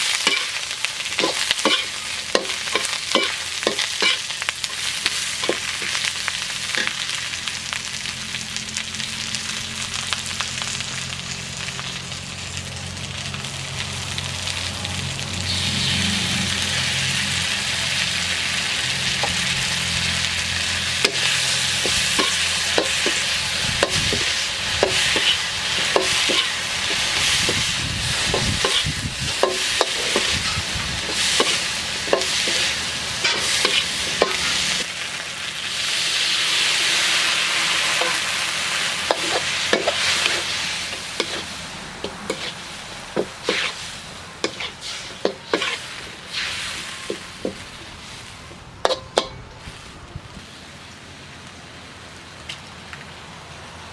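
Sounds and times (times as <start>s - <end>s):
food sizzling in a pan: 0.0s - 49.9s
utensil scraping a pan: 1.2s - 4.3s, 21.0s - 34.6s, 42.1s - 42.6s, 43.2s - 43.8s, 44.4s - 49.4s.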